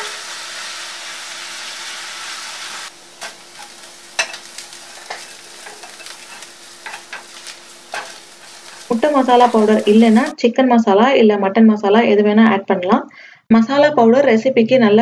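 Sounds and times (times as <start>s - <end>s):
onions sizzling in oil: 0.0s - 10.4s
wooden spatula tapping and scraping: 3.2s - 10.2s.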